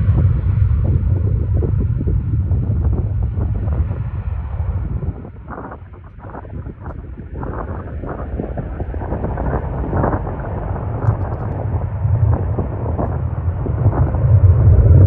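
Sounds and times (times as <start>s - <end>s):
jet engines rumbling: 0.0s - 15.0s
wind buffeting microphone: 0.0s - 15.0s.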